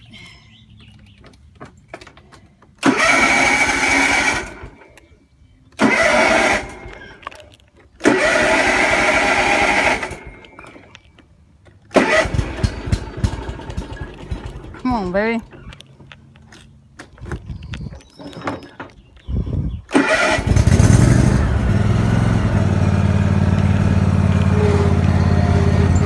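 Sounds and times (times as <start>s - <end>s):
lawn mower engine cranking: 2.0s - 5.0s, 5.7s - 17.4s, 19.9s - 26.0s
lawn mower engine running unevenly: 2.8s - 4.8s, 5.8s - 7.1s, 8.0s - 10.8s, 11.9s - 15.6s, 19.9s - 26.0s.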